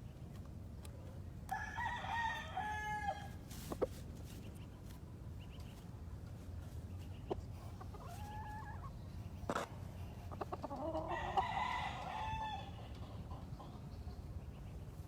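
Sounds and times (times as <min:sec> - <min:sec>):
rooster crowing: 0:01.5 - 0:03.4, 0:11.0 - 0:12.8.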